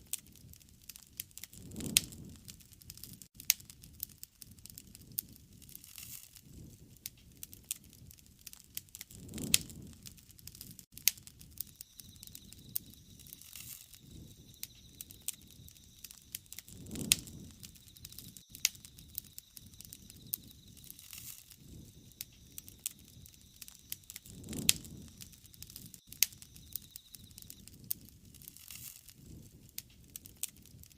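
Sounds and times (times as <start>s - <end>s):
fire popping and snapping: 0.0s - 30.9s
wood fire crackling: 0.0s - 30.9s
low rushing swells: 11.9s - 27.6s.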